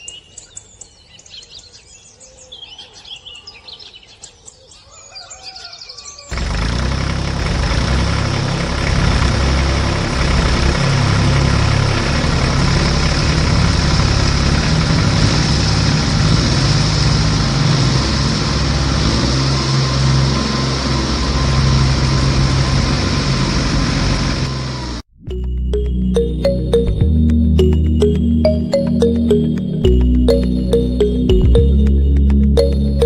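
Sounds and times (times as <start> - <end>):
tractor engine idling: 6.3 - 24.9.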